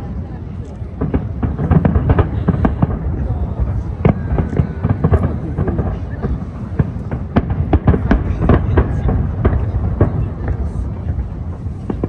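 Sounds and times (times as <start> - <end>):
crowd voices: 0.0 - 12.0
fireworks bursting with sharp bangs: 0.0 - 12.0
low rumble of booms: 0.9 - 12.0.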